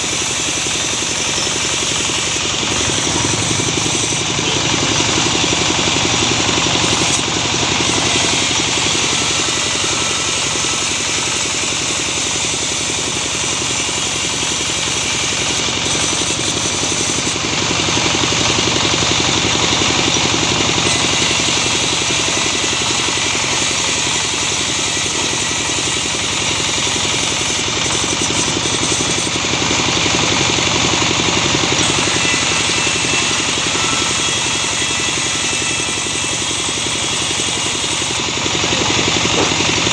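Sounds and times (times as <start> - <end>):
sawmill machine engine running: 0.0 - 39.9.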